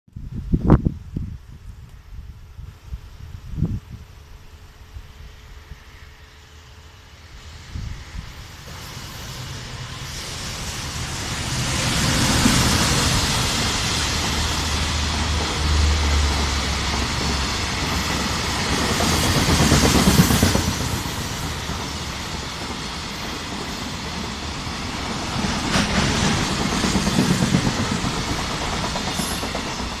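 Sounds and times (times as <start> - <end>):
freight train passing on rails: 0.4 - 30.0.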